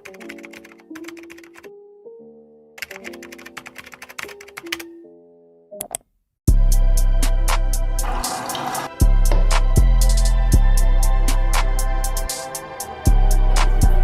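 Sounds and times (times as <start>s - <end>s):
soft background music: 0.0s - 14.0s
louder music track: 7.0s - 14.0s.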